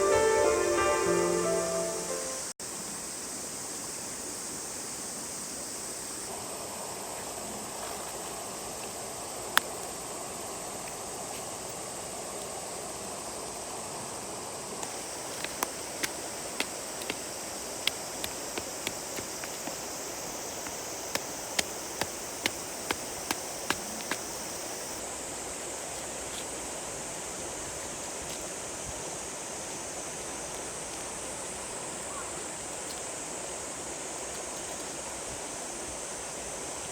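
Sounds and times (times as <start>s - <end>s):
river water running: 14.2s - 26.0s.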